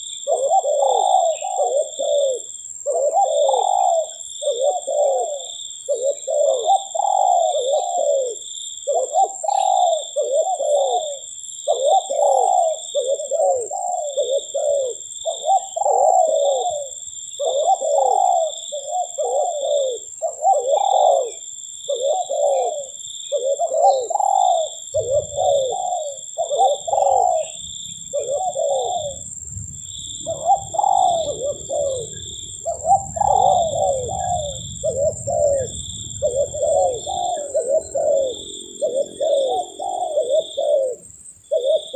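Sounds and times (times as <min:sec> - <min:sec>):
dove cooing: 0:00.0 - 0:41.9
steady high whine: 0:27.4 - 0:41.3
low rumble: 0:29.0 - 0:39.3.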